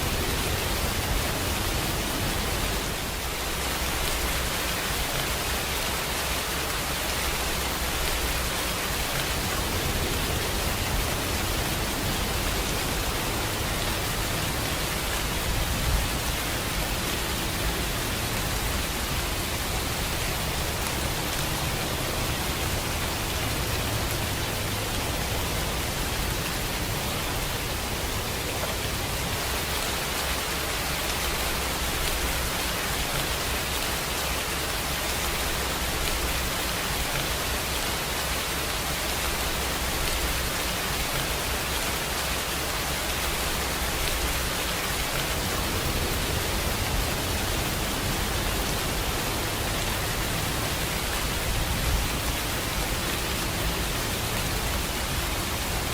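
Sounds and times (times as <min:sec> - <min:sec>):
rain falling: 0:00.0 - 0:55.9.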